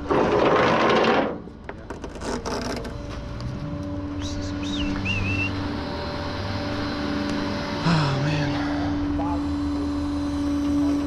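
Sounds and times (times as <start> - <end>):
truck engine idling: 2.8 - 11.0
high warbling whistle: 4.1 - 6.7.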